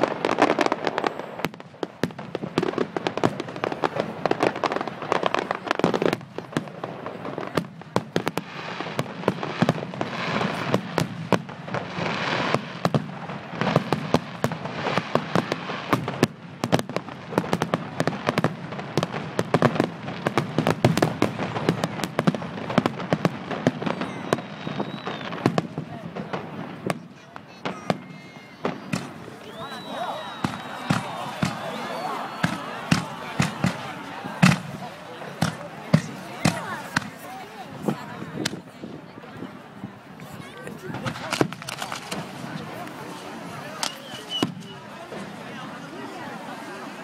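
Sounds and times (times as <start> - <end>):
fireworks banging and crackling: 0.0 - 47.0.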